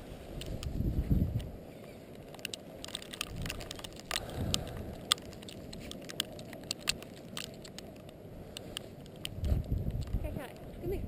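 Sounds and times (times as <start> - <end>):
sharp clicks: 2.1 - 10.7.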